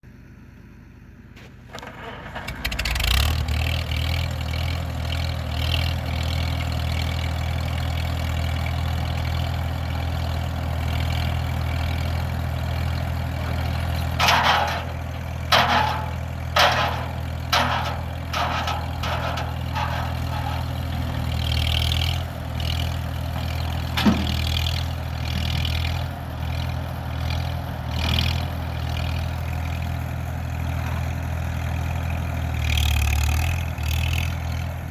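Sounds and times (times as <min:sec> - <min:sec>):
tractor engine running: 0:00.1 - 0:34.9
tractor engine starting: 0:00.7 - 0:27.0.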